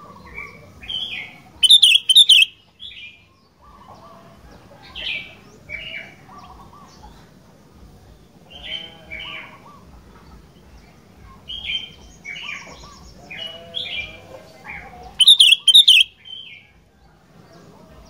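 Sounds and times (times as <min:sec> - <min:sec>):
bird singing bubbling whistles: 0:01.6 - 0:02.5, 0:15.2 - 0:16.1.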